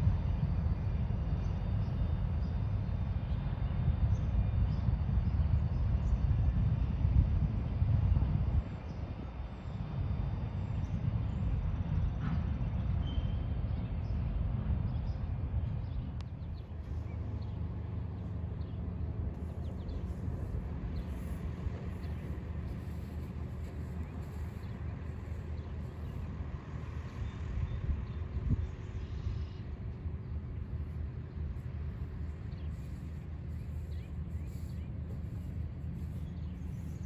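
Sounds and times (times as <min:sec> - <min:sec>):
train rumbling past: 0:11.7 - 0:37.0.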